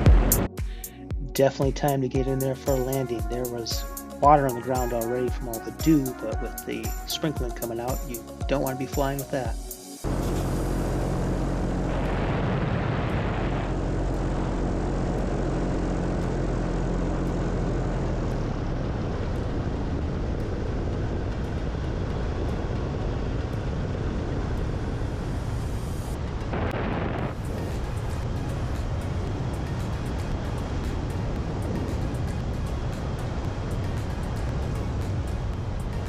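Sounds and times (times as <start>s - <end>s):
paramotor engine and propeller: 10.0s - 36.0s
wind rushing: 19.8s - 36.0s.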